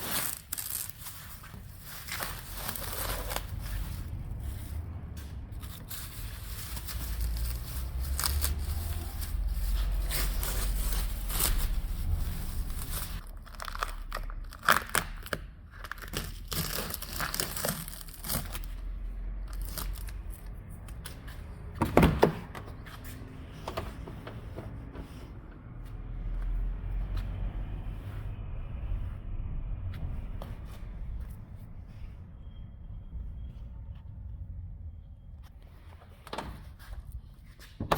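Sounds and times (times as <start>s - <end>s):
crinkling and rustling handling: 0.0s - 29.1s.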